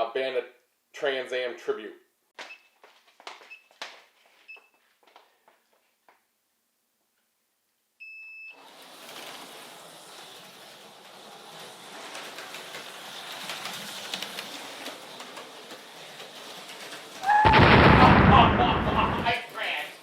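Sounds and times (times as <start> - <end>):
slot cars whirring on track: 8.6 - 17.2.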